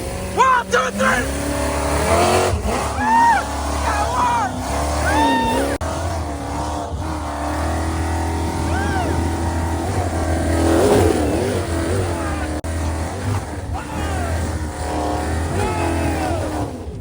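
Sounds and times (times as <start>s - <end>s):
racing engine running hard: 0.0s - 17.0s
person whooping: 0.4s - 1.2s, 2.9s - 5.8s, 8.6s - 9.3s, 15.5s - 16.6s.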